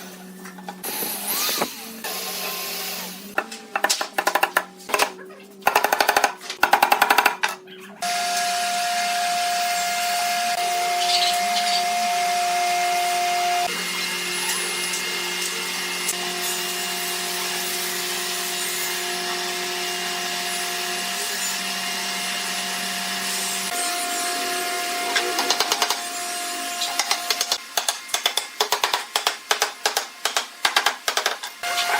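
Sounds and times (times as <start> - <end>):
power tool motor whining: 0.8 - 3.4, 8.0 - 27.6.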